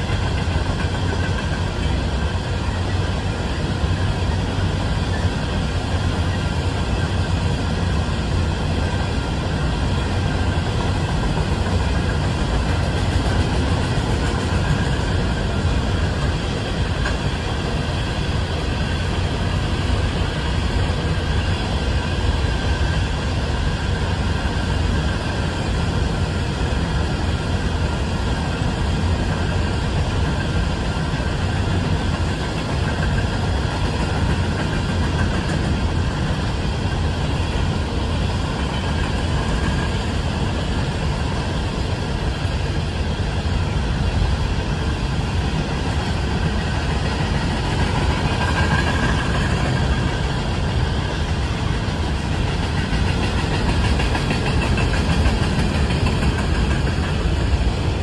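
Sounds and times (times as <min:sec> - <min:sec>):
faint ringing of wheels and rails: 0:00.0 - 0:58.0
train wheels rumbling on rails: 0:00.0 - 0:58.0.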